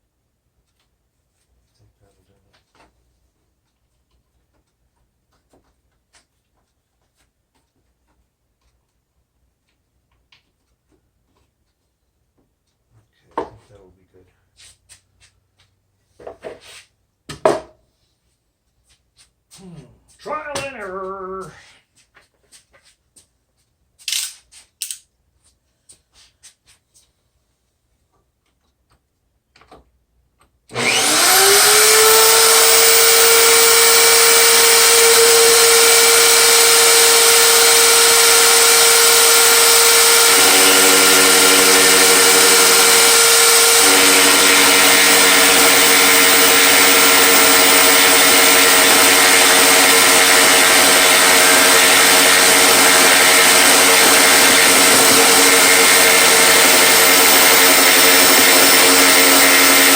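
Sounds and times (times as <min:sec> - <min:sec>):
power tool motor whining: 0:30.7 - 0:59.9.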